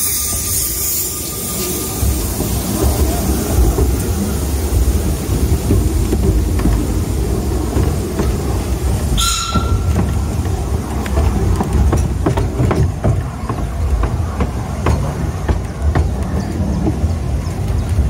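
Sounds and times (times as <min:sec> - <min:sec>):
high wheel squeal: 0:00.0 - 0:03.0, 0:09.1 - 0:10.0
train rumble: 0:00.0 - 0:18.0
wheels clicking over rail joints: 0:00.0 - 0:18.0.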